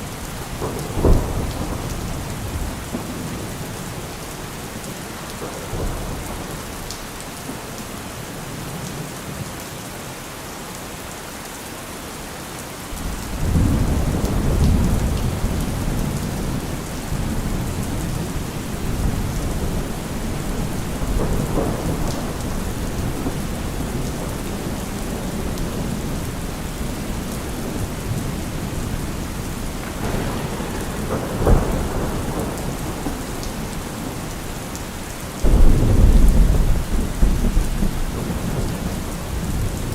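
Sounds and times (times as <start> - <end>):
low rumble of thunder: 0.0 - 7.2, 13.0 - 39.9
steady rain: 0.0 - 39.9
sharp thunderclap: 0.4 - 3.8, 13.0 - 34.8, 35.4 - 39.9.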